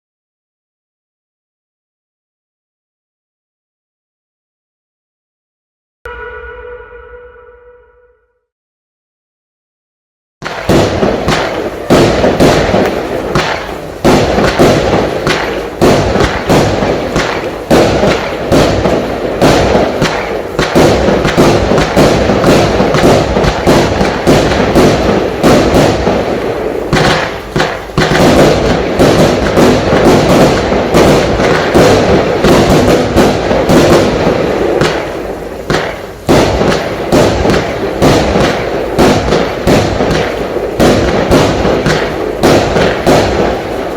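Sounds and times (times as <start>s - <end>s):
fireworks launching and bursting: 10.4s - 43.9s.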